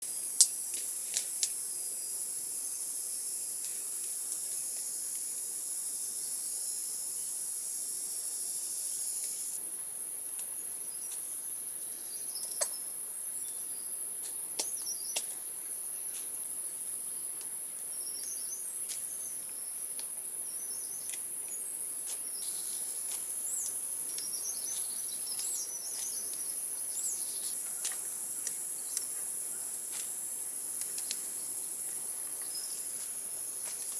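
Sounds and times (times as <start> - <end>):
insects droning: 0.0 - 33.9
low insect buzz: 0.1 - 33.9
birds chirping: 22.3 - 29.8, 30.9 - 33.4.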